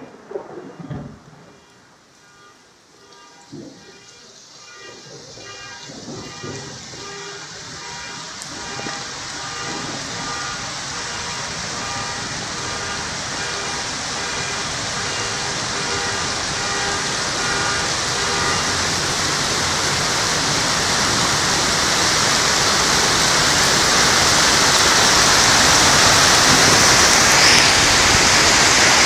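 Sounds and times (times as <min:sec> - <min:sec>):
heavy rain and hail: 0:00.0 - 0:29.0.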